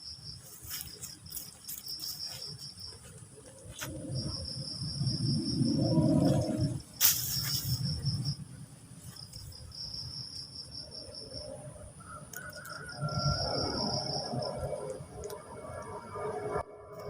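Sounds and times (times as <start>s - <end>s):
insects trilling: 0.0s - 17.0s
low rumble: 3.4s - 10.2s.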